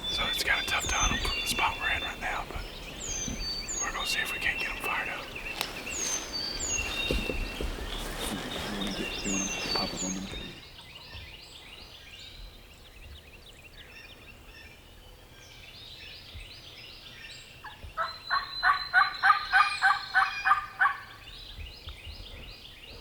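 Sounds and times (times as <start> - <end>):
faint songbirds chirping: 0.0 - 23.0
turkey call yelps: 18.3 - 21.1.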